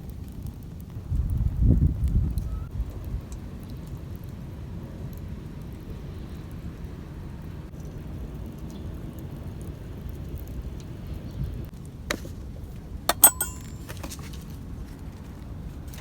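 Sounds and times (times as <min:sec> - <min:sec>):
metal cookware clinking: 0:13.1 - 0:14.0.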